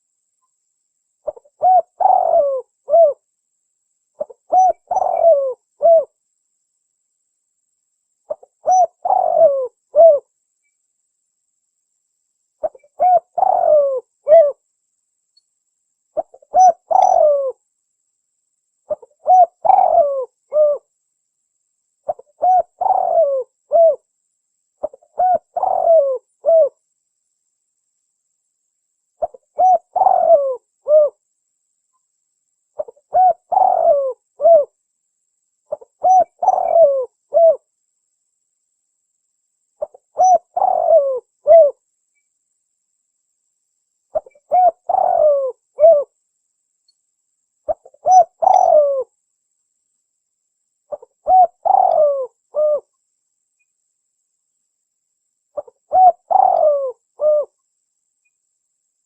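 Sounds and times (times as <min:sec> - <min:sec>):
dove cooing: 0:01.2 - 0:03.2, 0:04.2 - 0:06.2, 0:08.3 - 0:10.3, 0:12.6 - 0:14.6, 0:16.2 - 0:17.6, 0:18.9 - 0:20.9, 0:22.1 - 0:24.0, 0:24.8 - 0:26.8, 0:29.2 - 0:31.2, 0:32.8 - 0:34.8, 0:35.7 - 0:37.6, 0:39.8 - 0:41.8, 0:44.1 - 0:46.1, 0:47.7 - 0:49.1, 0:50.9 - 0:52.9, 0:55.6 - 0:57.6.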